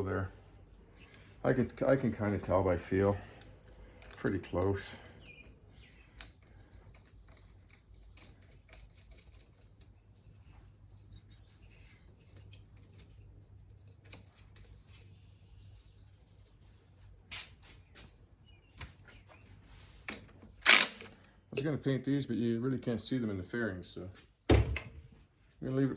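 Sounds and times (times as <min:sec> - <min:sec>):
metal tools clicking: 0:02.9 - 0:15.2.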